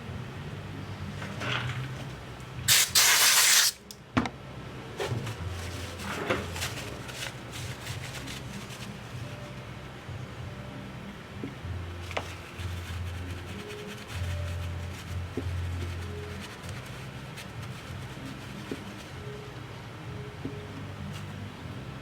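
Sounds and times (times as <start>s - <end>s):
compressed-air duster hissing: 2.7s - 3.8s.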